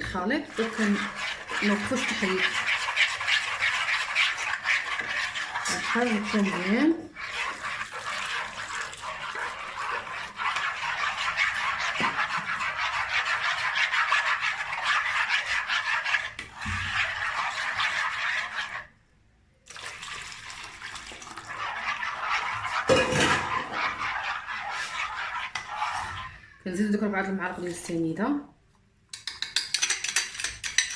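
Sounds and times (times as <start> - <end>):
liquid stirred in a bowl: 0.0 - 19.0, 19.6 - 28.1, 29.1 - 30.9.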